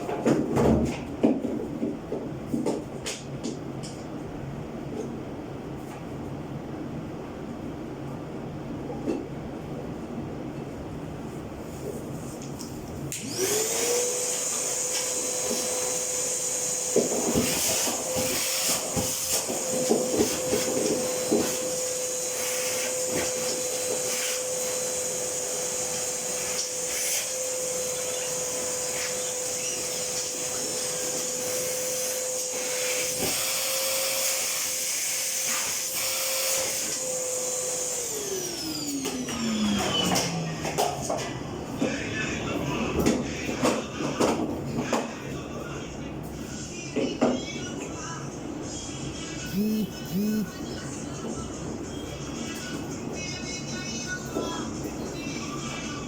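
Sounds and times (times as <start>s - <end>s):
electric motor whining: 13.2s - 34.8s, 49.5s - 50.6s.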